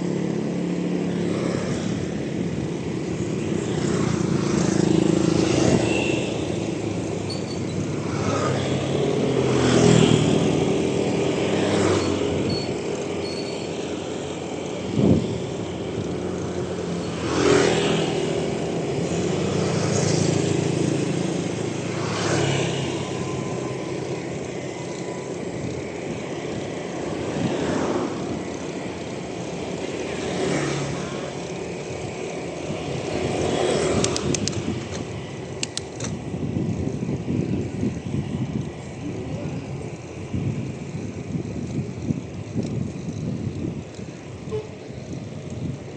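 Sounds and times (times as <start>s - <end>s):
vehicles passing on road: 0.0s - 45.9s
wind and road noise: 0.0s - 45.9s
high metallic clicks: 33.9s - 36.2s.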